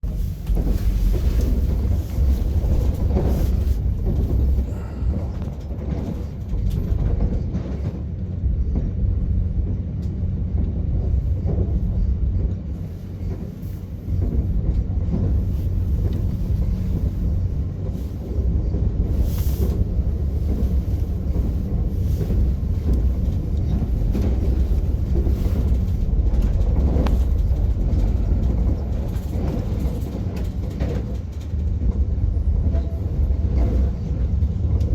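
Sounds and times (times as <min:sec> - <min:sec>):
train wheels rumbling on track: 0:00.0 - 0:34.9.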